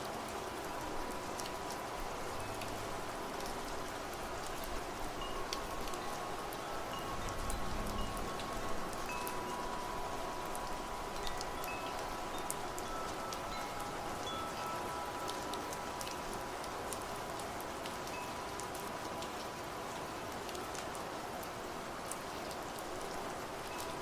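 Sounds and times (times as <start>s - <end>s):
steady rain: 0.0s - 24.0s
wind chimes ringing: 5.1s - 16.9s, 18.1s - 18.6s.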